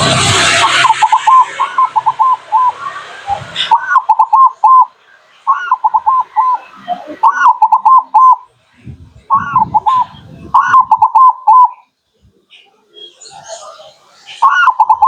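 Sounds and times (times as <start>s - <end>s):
dove cooing: 0.4s - 11.8s, 14.4s - 15.0s.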